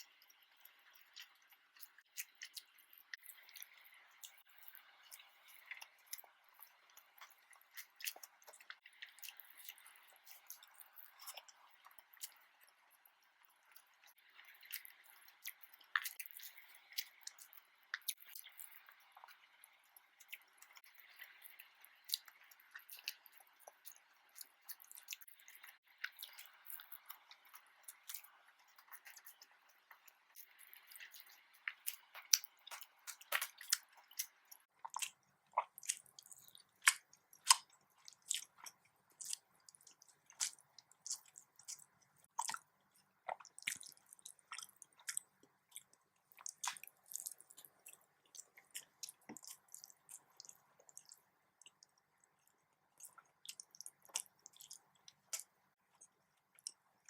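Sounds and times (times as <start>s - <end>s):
person chewing food: 0.0s - 57.0s
wet mouth clicks and smacks: 20.3s - 56.9s.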